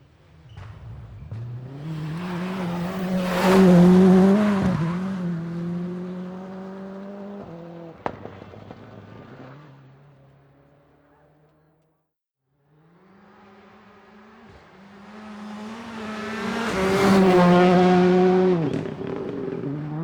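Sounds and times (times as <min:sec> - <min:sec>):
racing car engine passing: 0:00.3 - 0:08.0, 0:12.8 - 0:20.0.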